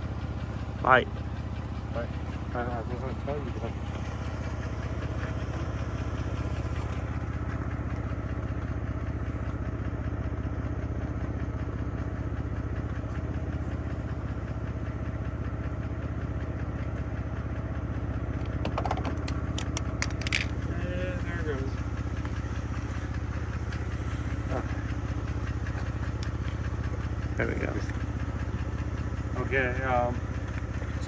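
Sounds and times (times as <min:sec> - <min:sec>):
car engine running: 0:00.0 - 0:31.0
sharp clicks: 0:19.0 - 0:20.6.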